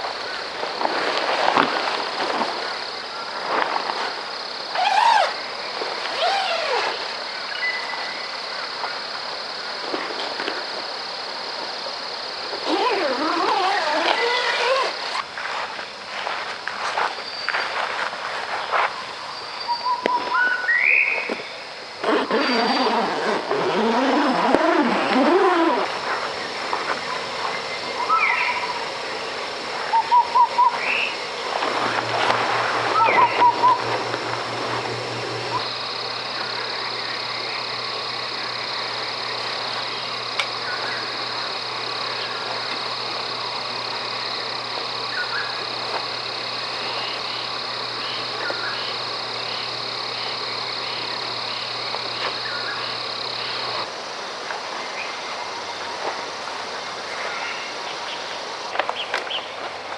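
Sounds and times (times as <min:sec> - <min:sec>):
rising and falling calls: 0:22.4 - 0:35.7
birds chirping: 0:22.4 - 0:42.6
flowing water: 0:24.4 - 0:35.7
high-pitched drone: 0:25.2 - 0:35.6
faint thin whistle: 0:32.9 - 0:34.0.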